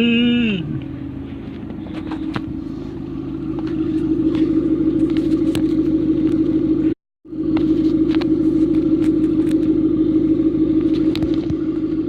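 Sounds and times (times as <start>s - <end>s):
car exhaust droning: 0.0s - 12.0s.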